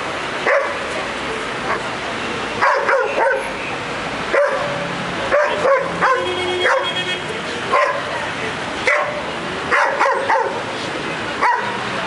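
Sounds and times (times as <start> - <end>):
steady background noise: 0.0 - 12.0
dog barking: 0.4 - 0.8, 2.6 - 3.5, 4.3 - 7.0, 7.7 - 8.1, 8.8 - 10.6, 11.4 - 11.8.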